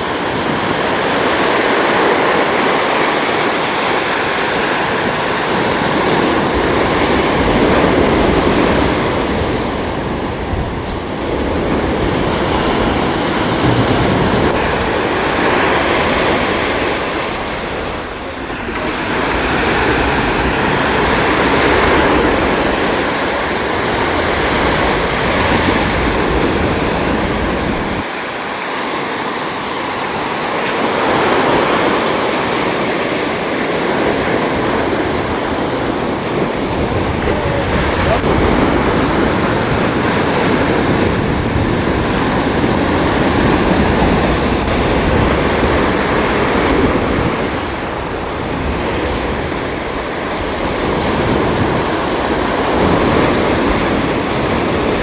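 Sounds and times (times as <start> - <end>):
ocean surf washing in: 0.0 - 55.0.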